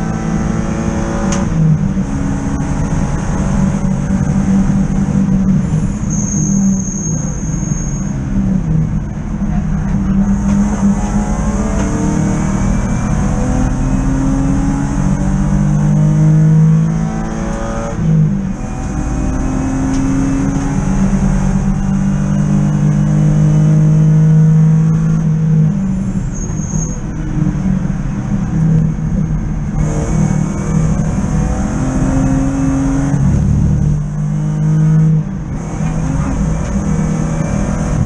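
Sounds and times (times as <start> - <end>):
race car engine revving: 8.4 - 26.3, 27.2 - 38.0.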